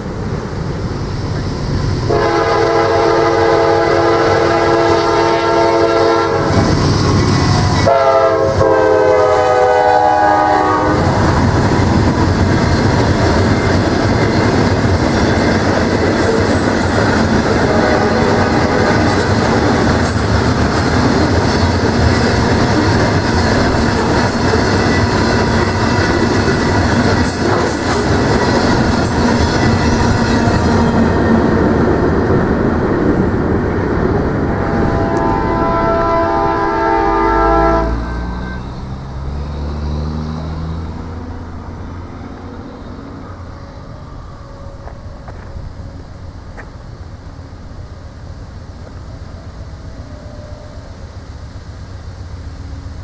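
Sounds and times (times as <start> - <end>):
locomotive air horn blasts: 2.0 - 6.7, 7.5 - 11.2, 17.4 - 19.2, 34.6 - 38.8
train wheels clattering on rails: 6.3 - 8.6, 10.9 - 36.8.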